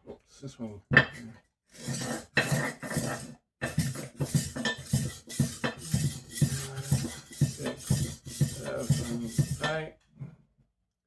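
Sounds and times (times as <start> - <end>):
knife sharpener rasping: 1.8 - 9.7.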